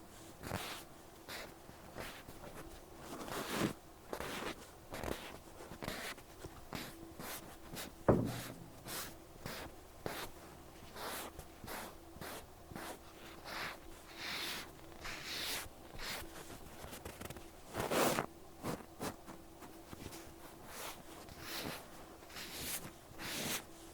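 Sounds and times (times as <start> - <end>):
sharp knock: 8.1 - 9.2.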